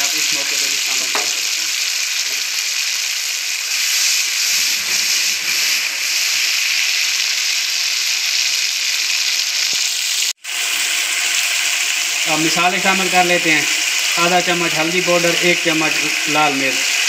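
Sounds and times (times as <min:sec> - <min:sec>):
gravy sizzling in a wok: 0:00.0 - 0:17.0.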